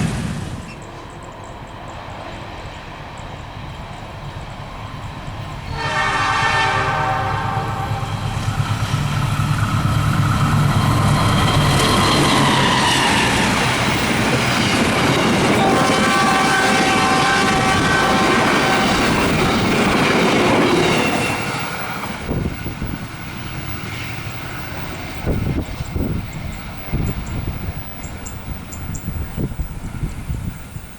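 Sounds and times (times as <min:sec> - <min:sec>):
train rumble and wheel clatter: 0:00.0 - 0:30.9
wind: 0:00.0 - 0:30.9
train horn: 0:05.6 - 0:08.5, 0:12.3 - 0:13.8, 0:15.4 - 0:19.8, 0:20.7 - 0:21.7.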